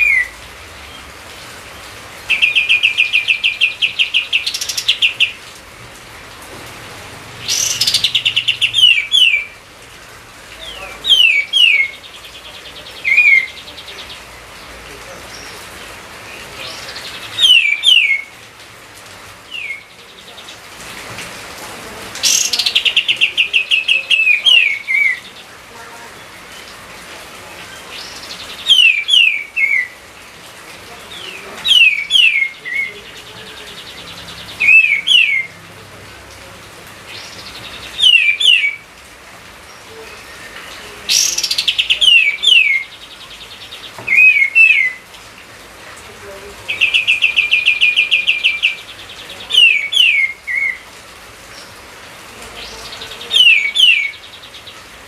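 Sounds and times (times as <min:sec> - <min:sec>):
songbird whistling: 0:00.0 - 0:00.3, 0:17.4 - 0:18.3, 0:38.0 - 0:38.8, 0:44.1 - 0:45.0.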